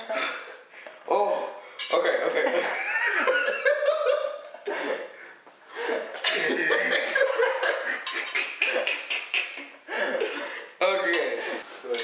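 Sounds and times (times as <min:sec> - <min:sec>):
young men laughing: 0:02.2 - 0:11.7.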